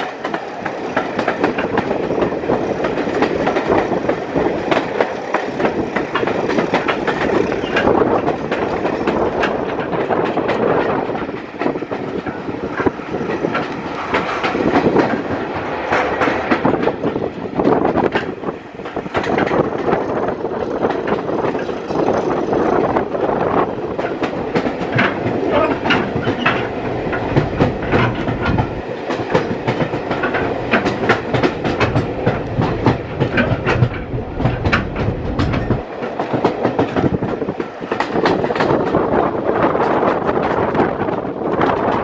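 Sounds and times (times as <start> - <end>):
train wheels rumbling on rails: 0.0 - 42.0
wheels clicking over rail joints: 0.0 - 42.0.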